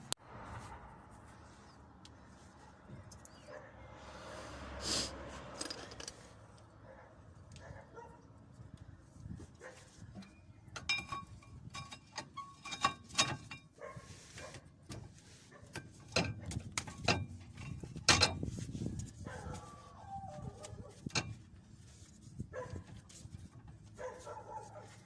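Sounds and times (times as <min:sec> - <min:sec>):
metal tools clinking and knocking: 0:05.6 - 0:06.3, 0:10.1 - 0:13.8, 0:15.8 - 0:18.5.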